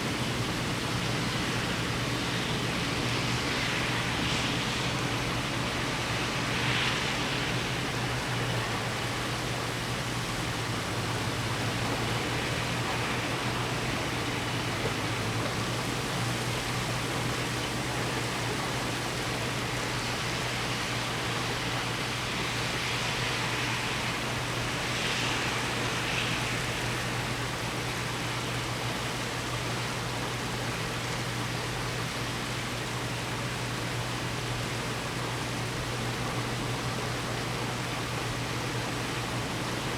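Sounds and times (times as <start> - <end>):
heavy rain pouring: 0.0 - 33.1, 33.8 - 39.9.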